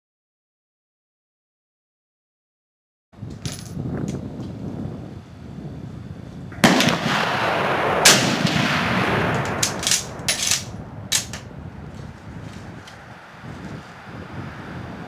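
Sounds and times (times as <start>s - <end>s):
rifle shots with echo: 6.6s - 11.3s
sharp cracks and clicks: 6.6s - 11.5s.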